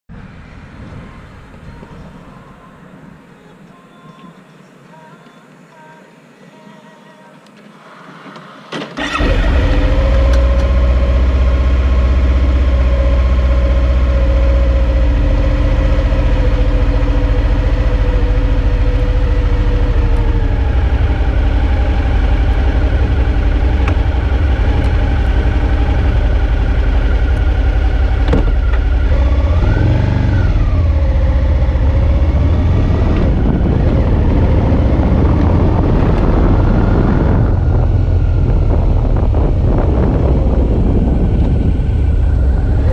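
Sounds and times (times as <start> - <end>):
motorcycle engine running: 9.0 - 42.9.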